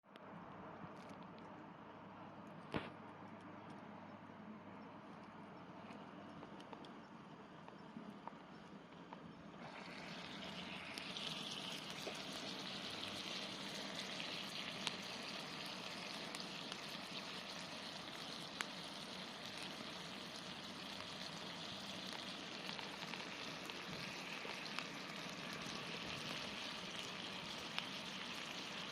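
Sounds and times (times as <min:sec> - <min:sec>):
food sizzling: 0:09.6 - 0:28.9.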